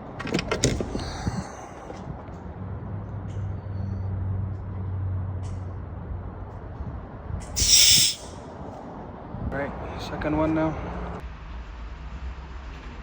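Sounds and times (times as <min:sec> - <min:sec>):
air hissing from gauge: 0:07.6 - 0:08.4.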